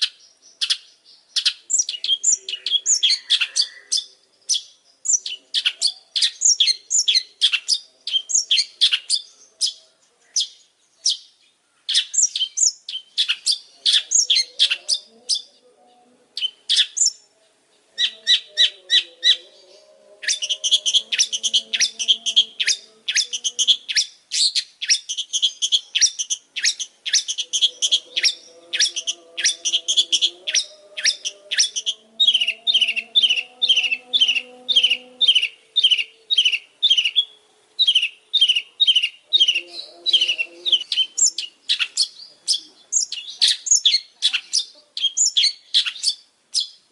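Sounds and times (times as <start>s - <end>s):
bird singing chattering song: 0.0s - 46.9s.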